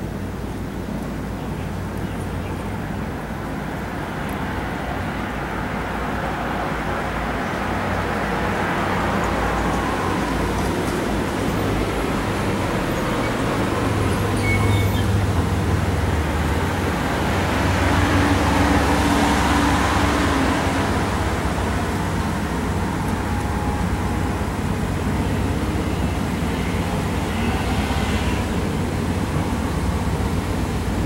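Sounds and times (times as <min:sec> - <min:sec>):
motor vehicle rumbling: 0:07.7 - 0:31.0.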